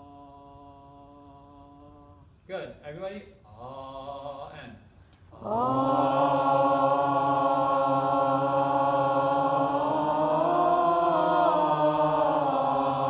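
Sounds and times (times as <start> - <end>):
group of voices singing: 5.4 - 13.0.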